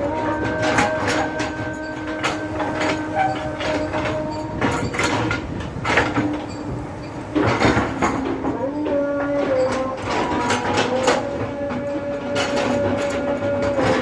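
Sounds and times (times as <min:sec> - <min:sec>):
backhoe loader diesel engine: 0:00.0 - 0:14.0
metallic knocks and clanks: 0:00.0 - 0:14.0.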